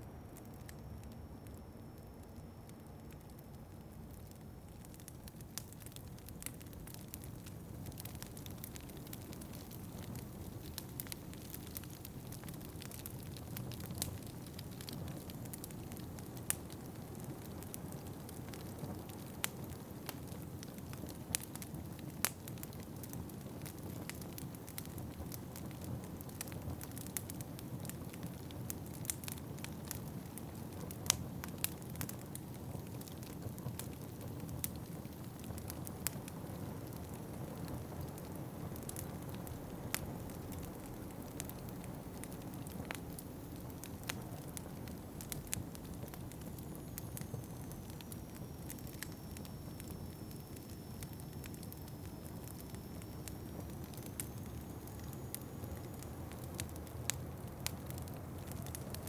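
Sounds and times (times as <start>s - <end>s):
wood fire crackling and popping: 0.3s - 59.0s.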